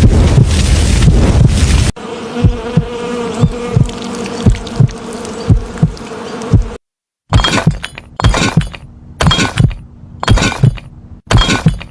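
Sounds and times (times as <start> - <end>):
buzzing hum: 1.9 - 6.8
glass shattering: 7.3 - 11.9.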